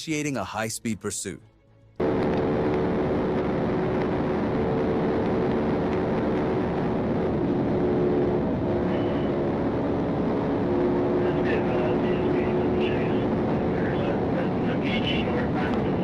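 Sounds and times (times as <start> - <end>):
car driving at high speed: 2.0 - 16.0.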